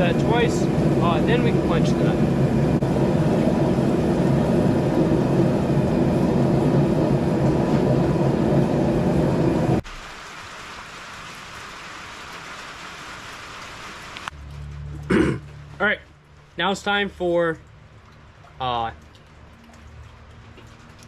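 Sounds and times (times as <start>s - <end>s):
forge roaring: 0.0s - 9.8s.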